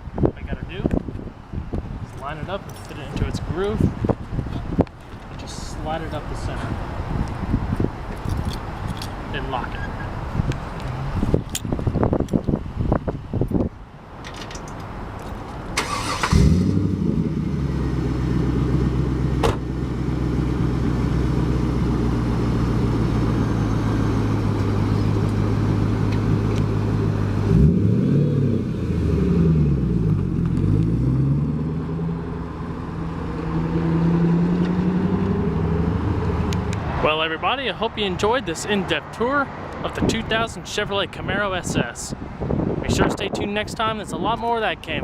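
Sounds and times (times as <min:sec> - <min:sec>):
car engine starting and idling: 0:15.7 - 0:37.0
engine revving: 0:15.8 - 0:19.0, 0:24.4 - 0:36.9.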